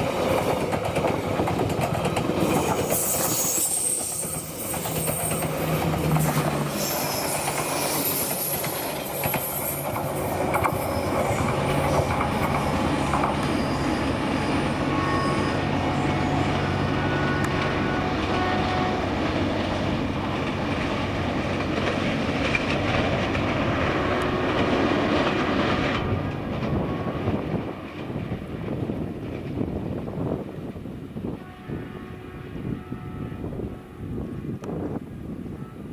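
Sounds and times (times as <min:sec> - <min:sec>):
train wheels rumbling on rails: 0:00.0 - 0:35.9
wheel squeal: 0:02.8 - 0:16.6.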